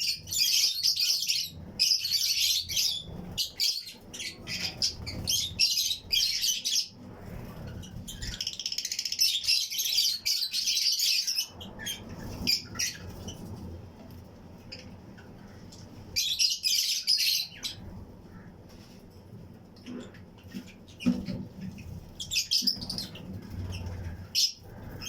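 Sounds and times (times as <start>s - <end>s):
lovebirds chirping and chattering: 0.0s - 18.7s, 19.7s - 25.0s.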